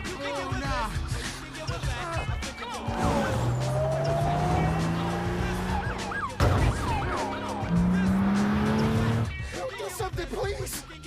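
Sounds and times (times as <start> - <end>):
police sirens wailing: 0.8 - 9.4
film score music: 2.2 - 9.5
car engine accelerating: 2.6 - 9.4.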